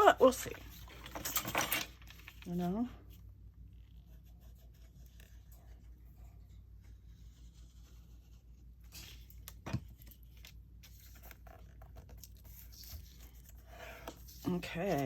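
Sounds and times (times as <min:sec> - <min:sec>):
paper rustling and scraping: 0:03.8 - 0:15.0.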